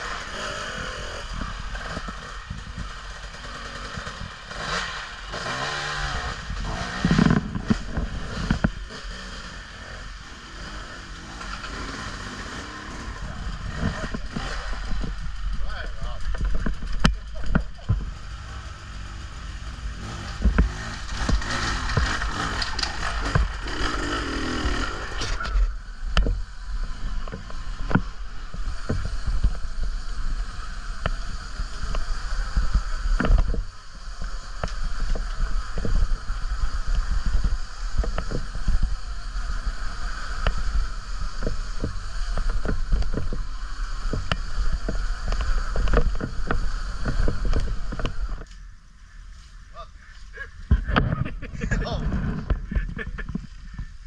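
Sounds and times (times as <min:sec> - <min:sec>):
bike whine: 0:00.0 - 0:54.0
wind rumble on microphone: 0:12.6 - 0:23.6, 0:24.6 - 0:48.5, 0:50.6 - 0:54.0.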